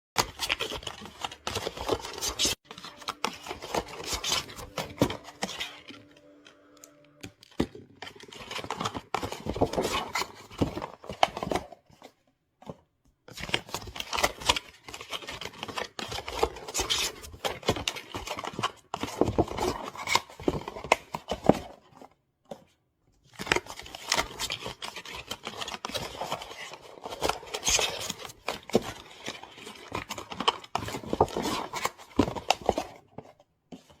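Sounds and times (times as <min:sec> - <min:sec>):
cardboard boxes scraping and tapping: 0:00.2 - 0:06.2, 0:23.3 - 0:34.0
paper rustling: 0:00.2 - 0:34.0.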